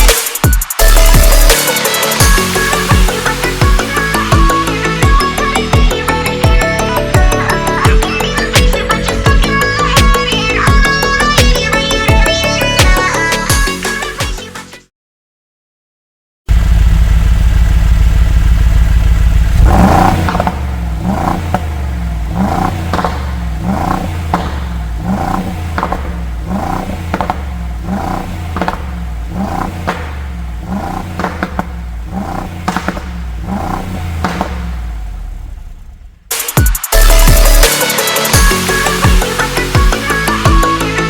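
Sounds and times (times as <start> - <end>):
car exhaust with throttle blips: 16.5 - 37.7.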